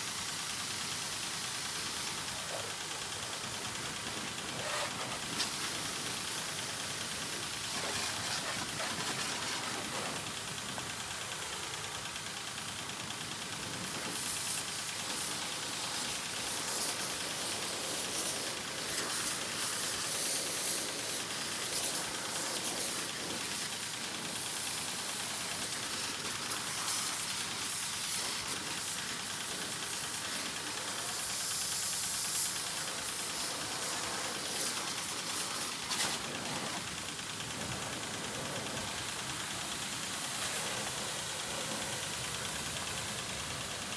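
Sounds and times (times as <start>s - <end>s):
spray jet hissing: 0.3s - 43.9s.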